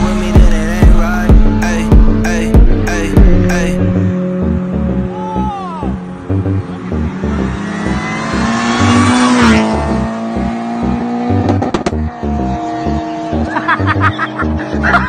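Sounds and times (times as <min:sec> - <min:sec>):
car engine passing by: 0:05.9 - 0:14.8.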